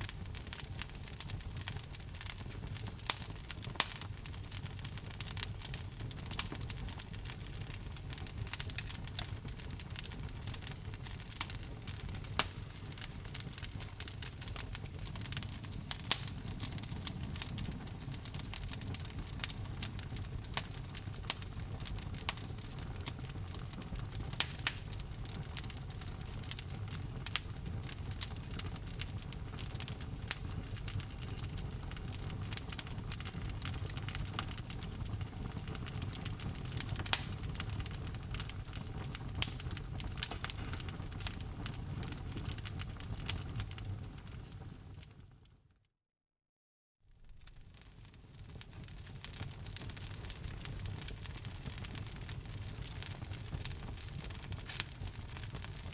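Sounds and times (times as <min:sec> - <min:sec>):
low rumble of flames: 0:00.0 - 0:45.5, 0:47.2 - 0:55.9
wood fire crackling and popping: 0:00.0 - 0:45.6, 0:47.2 - 0:55.9.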